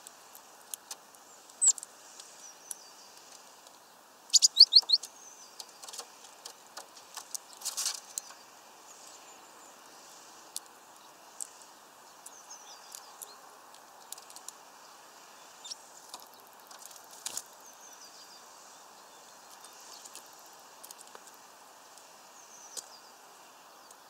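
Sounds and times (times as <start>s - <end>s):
steady background hiss: 0.0s - 24.0s
beaks pecking: 0.3s - 8.4s, 15.5s - 17.6s
high bird chirps: 4.3s - 5.1s.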